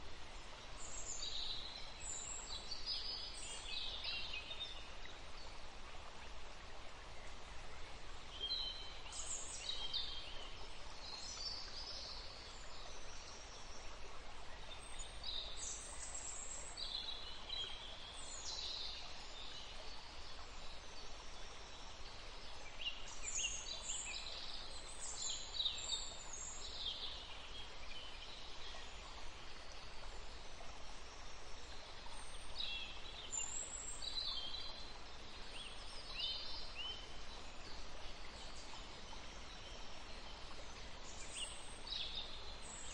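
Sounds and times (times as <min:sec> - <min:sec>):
river flowing: 0:00.0 - 0:42.9
songbirds chirping: 0:00.0 - 0:42.9.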